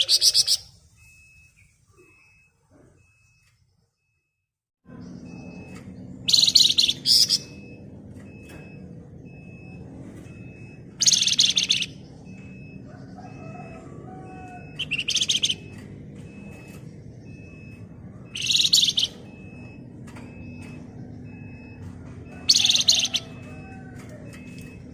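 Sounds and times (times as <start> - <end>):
songbird harsh trilling: 11.0 - 12.0, 14.8 - 15.6, 18.3 - 19.2.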